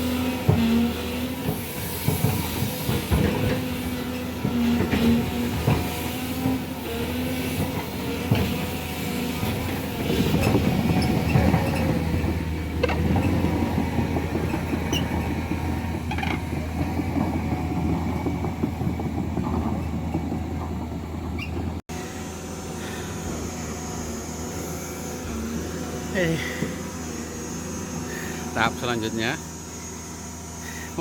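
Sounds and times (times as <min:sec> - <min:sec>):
metallic clanks and squeals: 0:00.0 - 0:21.8
diesel machine engine hum: 0:00.0 - 0:31.0.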